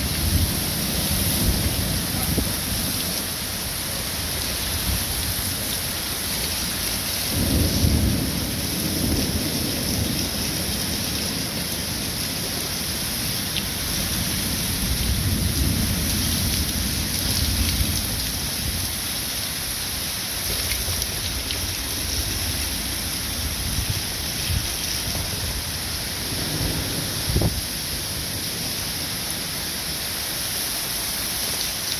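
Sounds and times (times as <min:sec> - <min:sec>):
thunder rumbling: 0:00.0 - 0:06.2, 0:06.9 - 0:12.6, 0:21.1 - 0:28.9
heavy rain pouring: 0:00.0 - 0:31.9.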